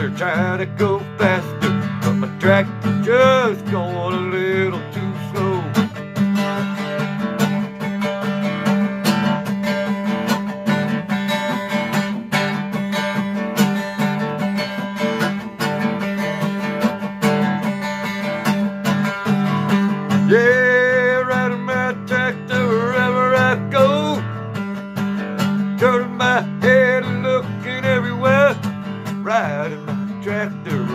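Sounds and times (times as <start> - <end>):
strummed acoustic guitar: 0.0 - 30.9.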